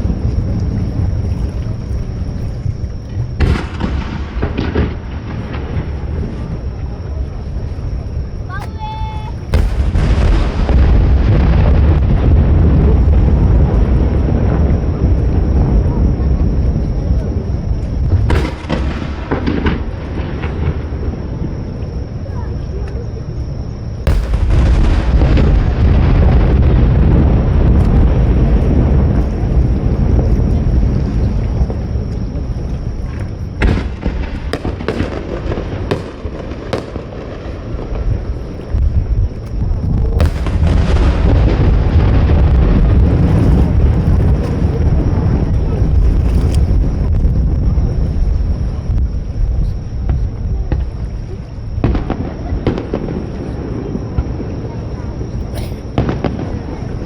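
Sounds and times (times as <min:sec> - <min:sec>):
wind and surf rumble: 0:00.0 - 0:57.0
crackling pops: 0:17.8 - 0:20.8, 0:24.1 - 0:26.6, 0:33.0 - 0:44.8
firework shell bursting: 0:24.1 - 0:26.7.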